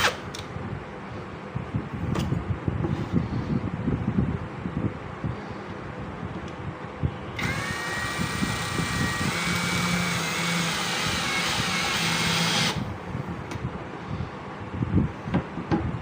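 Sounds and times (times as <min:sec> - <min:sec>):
cordless drill whining: 0:07.4 - 0:12.9.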